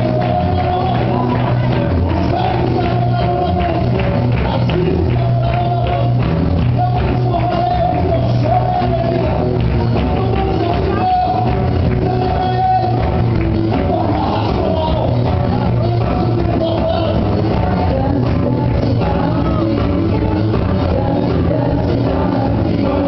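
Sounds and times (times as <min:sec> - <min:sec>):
drums playing steady beat: 0:00.0 - 0:23.0
voices singing praise song: 0:13.8 - 0:23.0.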